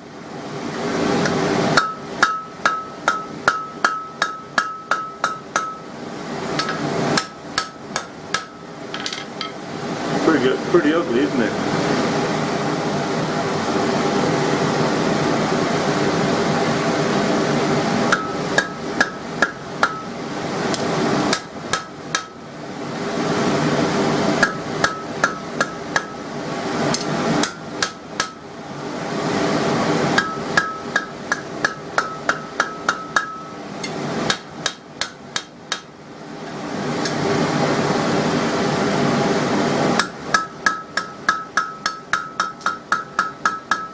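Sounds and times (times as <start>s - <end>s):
forge blower whirring: 0.0s - 43.9s
hammer striking steel on anvil: 1.2s - 5.9s, 6.6s - 9.6s, 18.1s - 20.1s, 20.7s - 22.4s, 24.4s - 26.2s, 26.9s - 28.4s, 30.2s - 35.9s, 40.0s - 43.9s.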